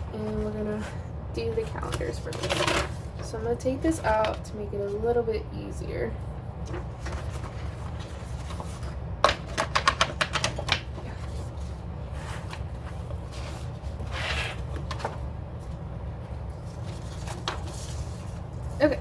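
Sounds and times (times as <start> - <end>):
paper rustle: 6.6 - 19.0.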